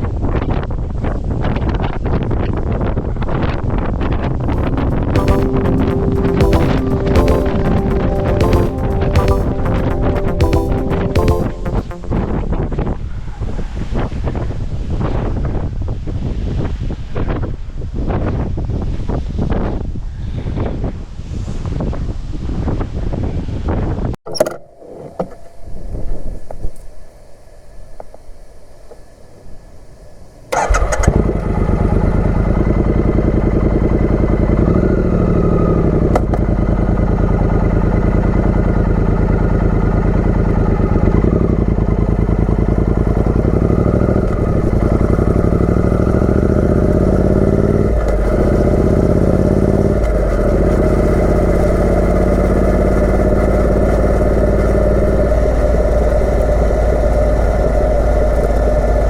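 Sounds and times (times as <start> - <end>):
motorcycle engine revving: 30.6 - 59.0.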